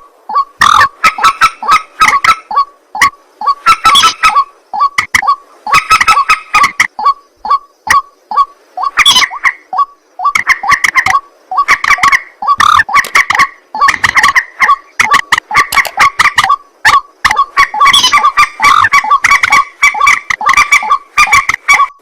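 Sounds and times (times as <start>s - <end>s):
bird harsh repeated calls: 0.0s - 22.0s.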